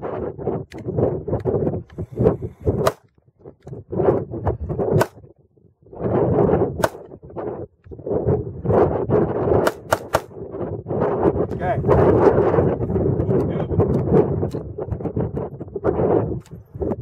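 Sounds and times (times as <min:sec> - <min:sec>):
rough rumbling noise: 0:00.7 - 0:03.8, 0:11.3 - 0:14.2
pistol shots: 0:09.6 - 0:10.4.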